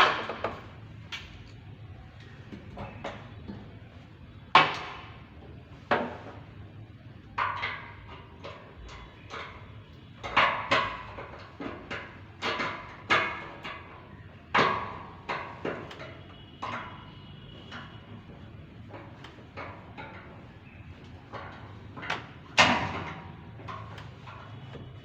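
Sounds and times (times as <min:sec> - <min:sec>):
metal knocks and clanks: 0:07.2 - 0:25.0.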